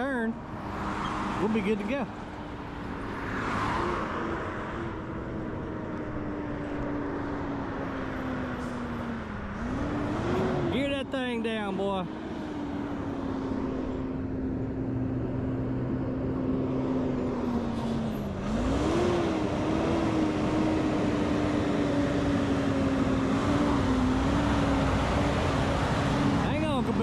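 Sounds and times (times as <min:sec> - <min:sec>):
truck engine: 0:00.0 - 0:27.0.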